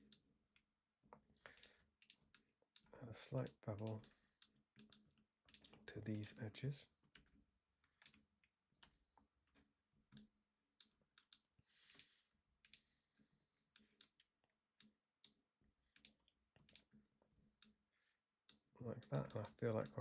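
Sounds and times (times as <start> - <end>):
mouse and keyboard clicks: 8.0 - 12.8.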